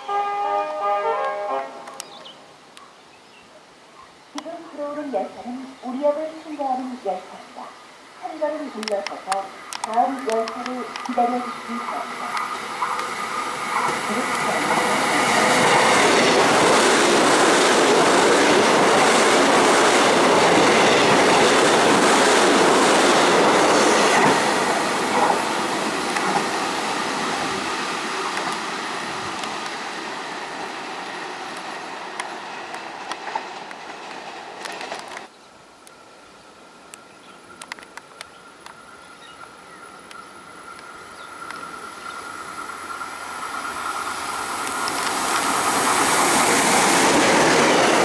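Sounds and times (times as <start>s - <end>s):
train wheel and rail noise: 4.3s - 48.0s
sharp wheel ticks: 8.8s - 13.2s.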